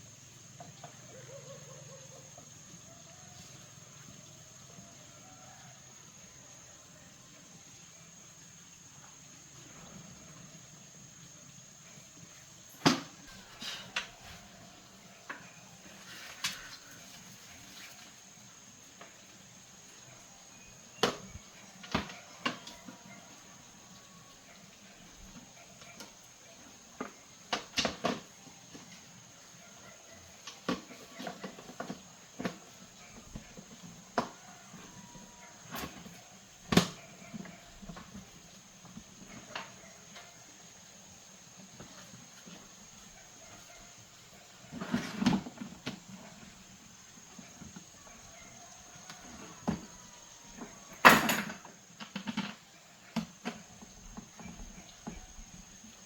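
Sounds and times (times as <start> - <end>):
objects clattering: 50.6 - 55.2.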